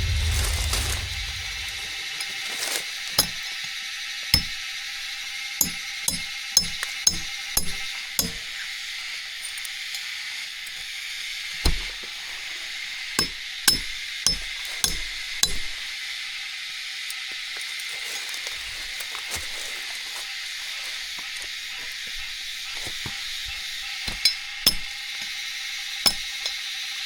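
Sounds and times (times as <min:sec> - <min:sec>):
steady high hiss: 0:00.0 - 0:02.9.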